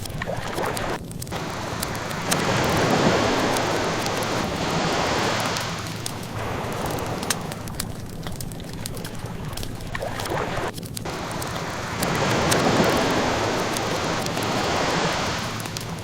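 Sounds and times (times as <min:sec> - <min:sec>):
burning wood crackling: 0:00.0 - 0:16.0
ocean wave washing in: 0:00.3 - 0:09.4, 0:10.0 - 0:16.0.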